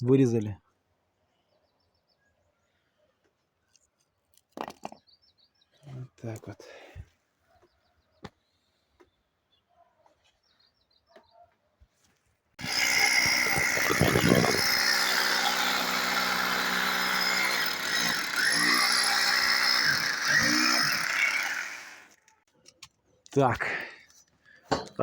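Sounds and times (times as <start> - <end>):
electric power drill running: 12.6 - 22.2.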